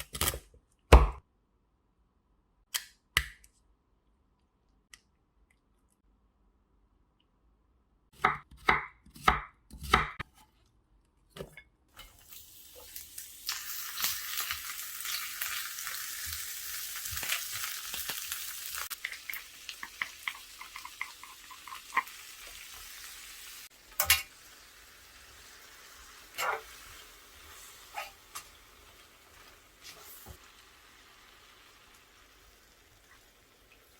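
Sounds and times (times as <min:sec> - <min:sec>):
food sizzling in a hot pan: 0:12.0 - 0:33.9.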